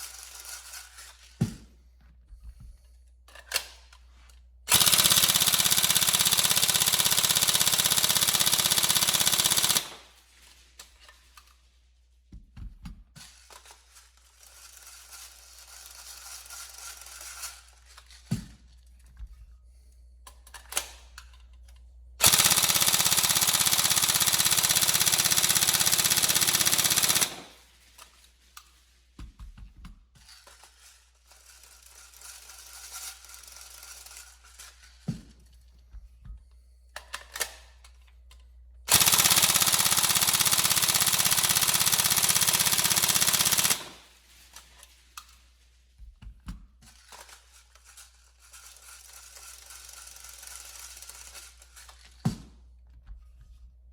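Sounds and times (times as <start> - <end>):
airsoft rifle full-auto firing: 4.7 - 10.2, 22.2 - 27.7, 38.9 - 44.2, 49.1 - 51.6.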